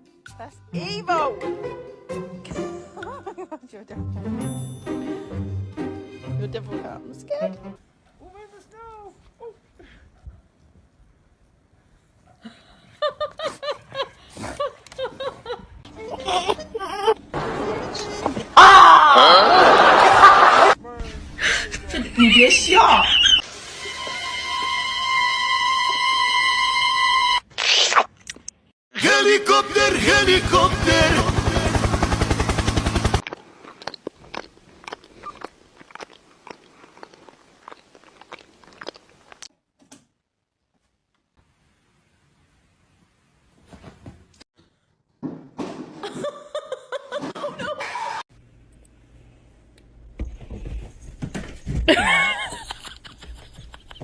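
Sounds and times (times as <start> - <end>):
person giggling: 2.8 - 3.7, 12.4 - 17.2, 46.0 - 48.2, 51.9 - 54.0
crunchy chewing: 33.2 - 39.5.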